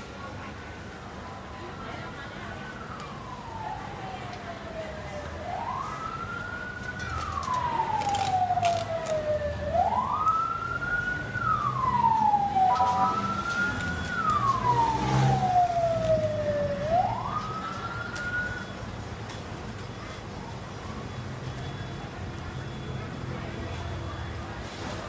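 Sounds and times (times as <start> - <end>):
emergency siren wailing: 1.2 - 18.9.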